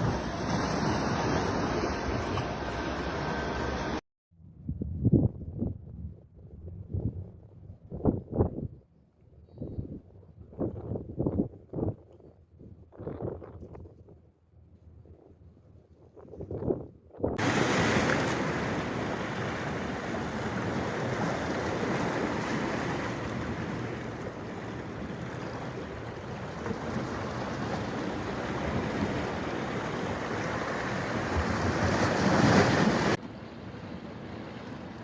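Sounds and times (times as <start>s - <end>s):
flowing water rushing: 0.0s - 4.0s, 17.4s - 35.0s.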